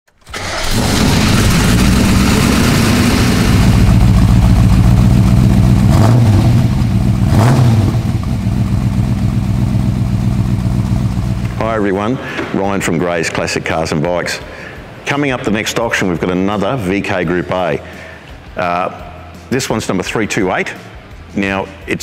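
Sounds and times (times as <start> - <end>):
car engine idling: 0.2 - 11.9
engine revving: 0.3 - 11.4.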